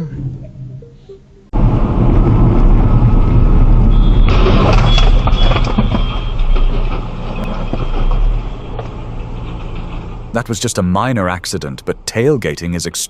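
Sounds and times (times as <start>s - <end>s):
heavy truck engine rumble: 1.5s - 13.0s
noisy burst with high squeal: 1.6s - 10.8s.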